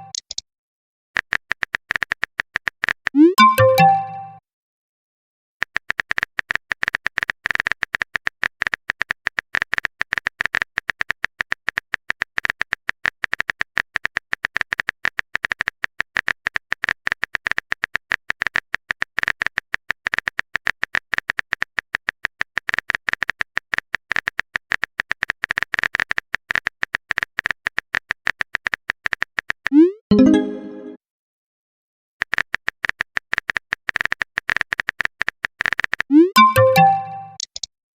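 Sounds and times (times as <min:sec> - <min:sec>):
keyboard typing clicks: 0:00.0 - 0:00.4, 0:01.3 - 0:04.4, 0:32.3 - 0:37.7.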